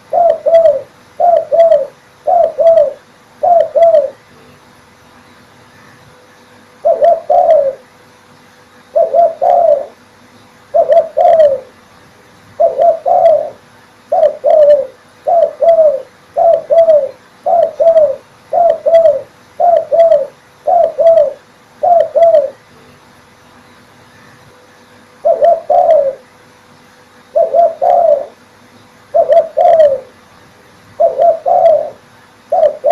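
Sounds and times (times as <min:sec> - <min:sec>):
dove cooing: 0:00.0 - 0:04.2, 0:06.8 - 0:07.9, 0:08.9 - 0:10.0, 0:10.7 - 0:11.8, 0:12.6 - 0:22.6, 0:25.2 - 0:26.3, 0:27.3 - 0:28.4, 0:29.1 - 0:30.2, 0:31.0 - 0:32.9.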